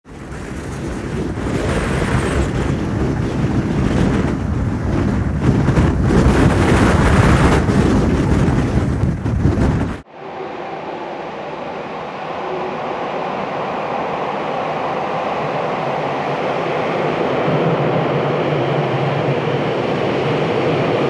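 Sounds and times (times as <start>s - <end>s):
gusting wind buffeting microphone: 0.0s - 10.1s
train running: 0.1s - 10.0s.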